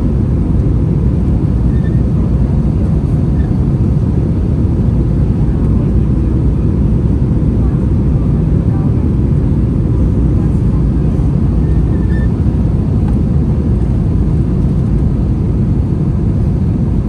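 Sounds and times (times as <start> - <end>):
airplane cabin rumble: 0.0 - 17.0.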